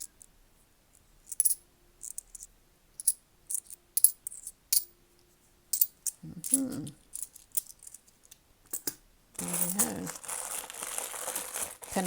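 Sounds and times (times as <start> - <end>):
coins clinking: 1.3 - 4.9, 5.7 - 8.0, 8.7 - 10.2.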